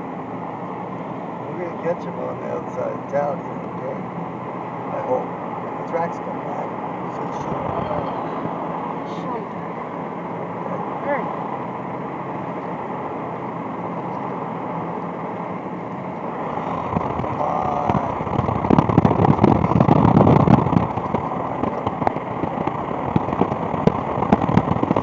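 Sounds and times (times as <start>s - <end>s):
road noise: 0.0s - 25.0s
dense crackling and popping: 0.4s - 25.0s
wind buffeting microphone: 6.7s - 12.2s, 14.8s - 25.0s.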